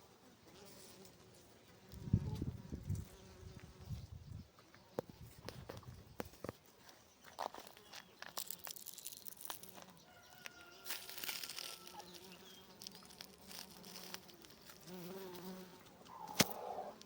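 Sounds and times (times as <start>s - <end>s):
bee buzzing: 0.0s - 4.3s, 8.4s - 17.0s.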